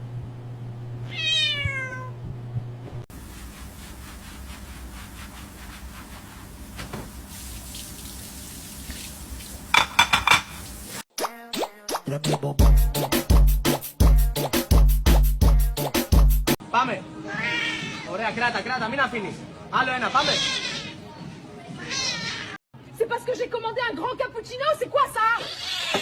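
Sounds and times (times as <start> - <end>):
cat meowing: 1.0 - 2.2, 17.2 - 18.1, 20.1 - 21.0, 21.8 - 22.6, 25.4 - 26.0
running water: 3.1 - 11.0.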